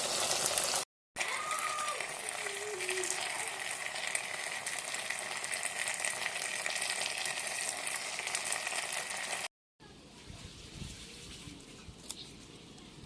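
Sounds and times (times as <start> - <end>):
food sizzling in hot oil: 0.0 - 9.5.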